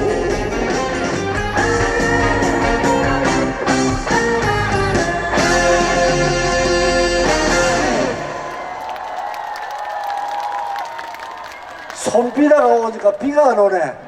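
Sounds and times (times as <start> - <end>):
live band playing: 0.0 - 8.4
guitar: 0.0 - 8.5.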